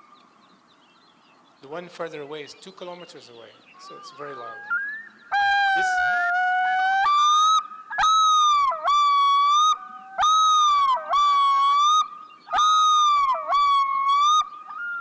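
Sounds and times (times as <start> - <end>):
loon yodel over loudspeakers: 3.8 - 15.0.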